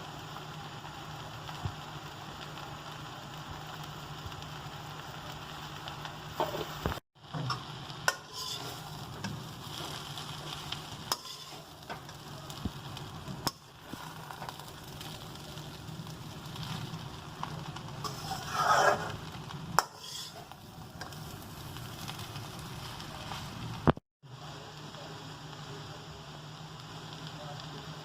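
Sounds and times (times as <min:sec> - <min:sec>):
food sizzling in a frying pan: 0:00.0 - 0:28.0
utensil scraping a pan: 0:08.1 - 0:11.7, 0:18.0 - 0:19.2, 0:19.8 - 0:20.6.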